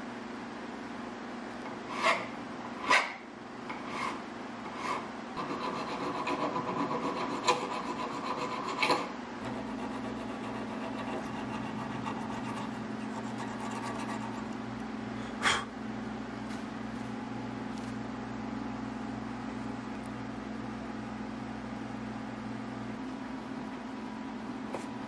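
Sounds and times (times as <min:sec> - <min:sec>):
hand file filing steel: 0:01.9 - 0:03.1, 0:03.8 - 0:14.5.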